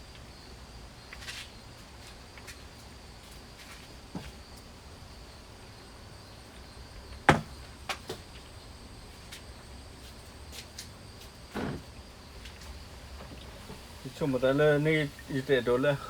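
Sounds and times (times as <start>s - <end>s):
faint high whine: 11.2s - 16.0s.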